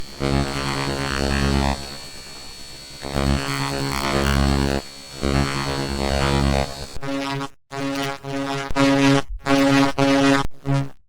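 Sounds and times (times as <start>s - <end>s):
buzzing humming drone: 0.0s - 8.8s.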